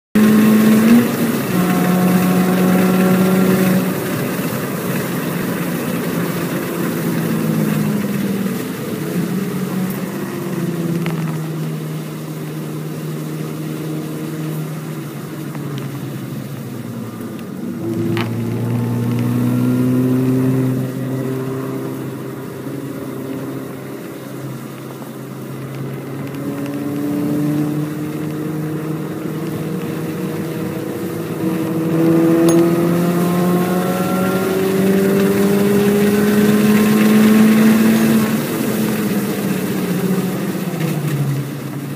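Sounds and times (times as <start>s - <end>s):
car engine revving hard: 0.2s - 10.7s, 17.6s - 24.0s, 25.5s - 41.1s.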